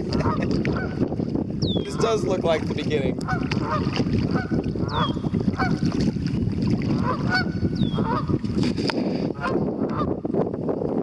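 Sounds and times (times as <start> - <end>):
geese honking: 0.2 - 1.0, 3.2 - 5.8, 7.0 - 8.4.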